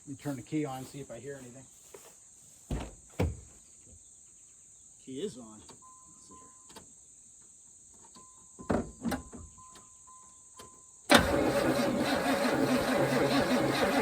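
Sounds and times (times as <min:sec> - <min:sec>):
faint beeping: 0:05.8 - 0:06.7
starter cranking engine: 0:11.1 - 0:14.0.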